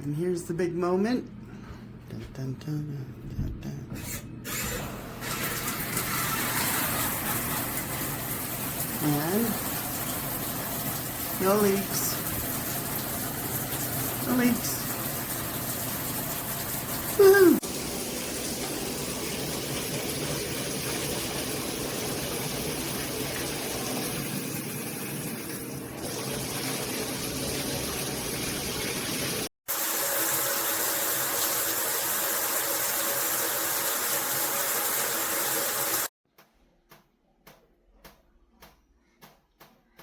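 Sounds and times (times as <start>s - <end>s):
shower water spraying: 4.5s - 36.1s.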